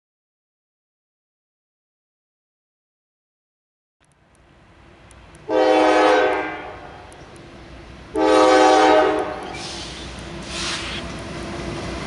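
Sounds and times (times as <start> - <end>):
train rumbling: 4.2 - 12.0
locomotive air horn blasts: 5.5 - 7.0, 8.1 - 10.9.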